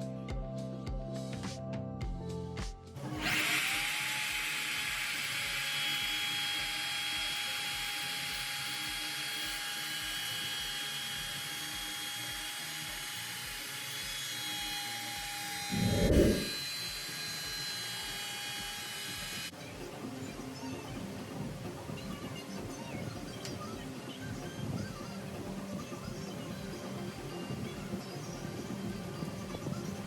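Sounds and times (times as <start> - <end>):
music with a beat: 0.0 - 3.0, 4.9 - 15.4, 16.5 - 30.0
electric power tool whining: 3.0 - 19.5
low rumble: 15.7 - 16.6.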